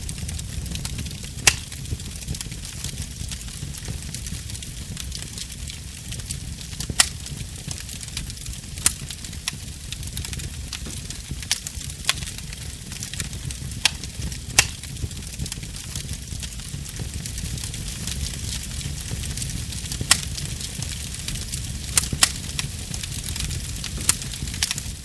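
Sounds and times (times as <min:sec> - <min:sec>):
fire crackling pops: 0:00.0 - 0:25.0
fire rumbling and hissing: 0:00.0 - 0:25.0.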